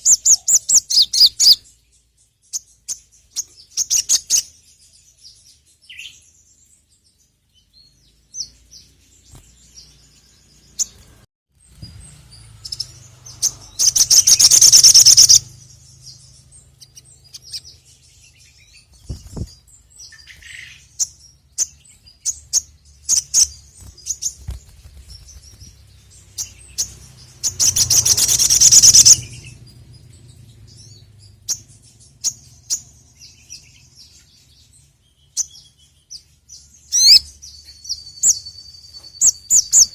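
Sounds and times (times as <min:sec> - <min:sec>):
bird chirping: 0:00.0 - 0:39.9
bird rattling trill: 0:13.7 - 0:15.6, 0:26.5 - 0:29.3.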